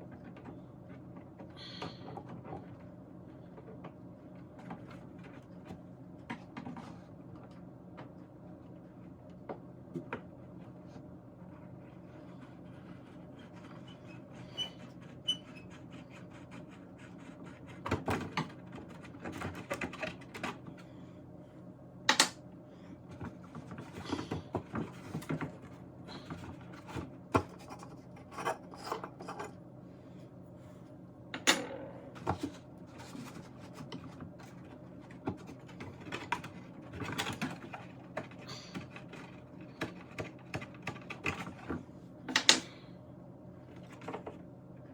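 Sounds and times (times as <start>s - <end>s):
steady low hum: 18.5s - 44.9s.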